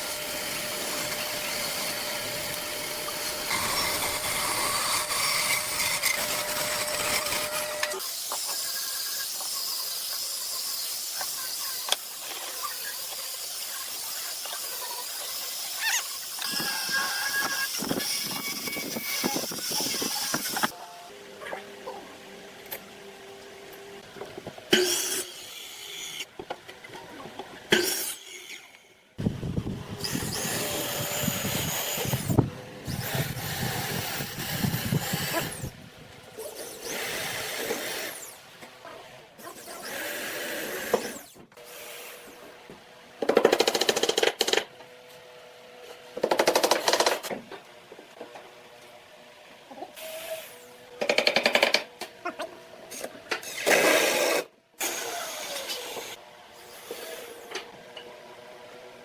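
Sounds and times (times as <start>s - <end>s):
power tools cutting wood: 0.0s - 20.8s, 29.5s - 35.8s, 36.4s - 38.6s, 39.4s - 42.6s, 52.9s - 58.1s.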